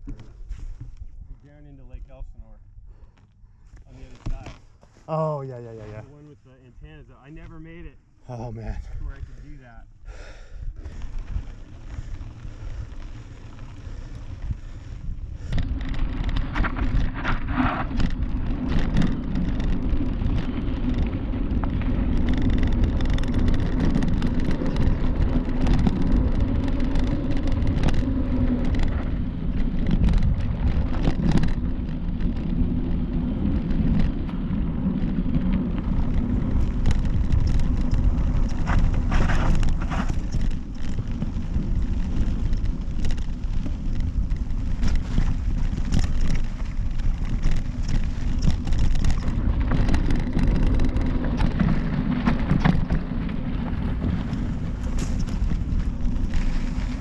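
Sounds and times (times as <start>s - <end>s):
tyres rolling on dirt trail: 0.0s - 57.0s
bike knocks and rattles: 15.4s - 57.0s.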